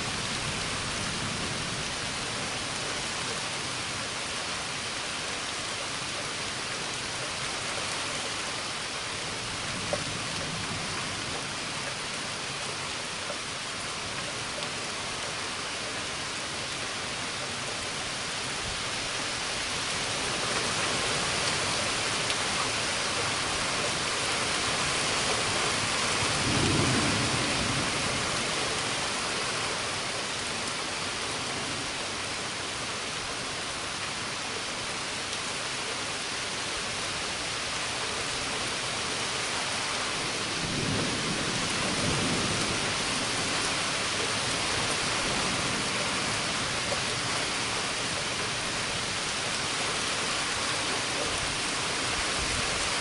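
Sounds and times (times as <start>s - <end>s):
heavy rain falling: 0.0s - 53.0s
low thunder rumbling: 26.1s - 28.5s, 40.4s - 43.9s.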